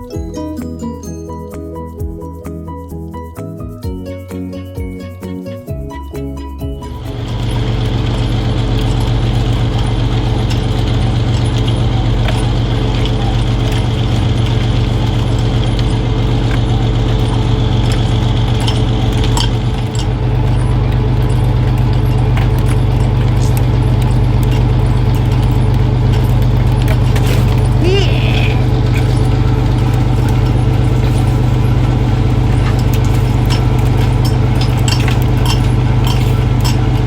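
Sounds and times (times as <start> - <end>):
deep engine hum: 0.0 - 37.0
mechanical clicking and rattling: 6.9 - 27.8, 28.6 - 37.0.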